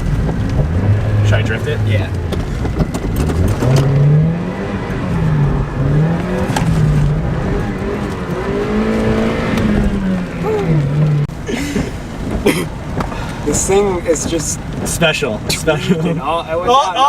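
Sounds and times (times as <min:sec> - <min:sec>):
car engine revving hard: 0:00.0 - 0:13.7.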